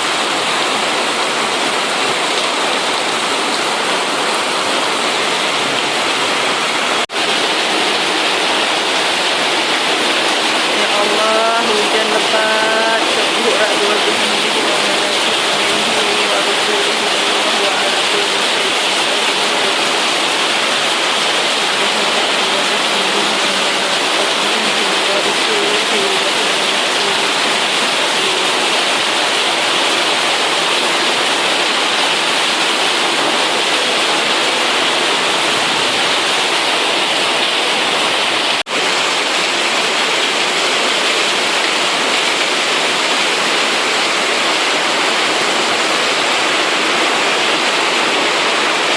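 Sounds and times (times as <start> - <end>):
heavy rain downpour: 0.0 - 48.9.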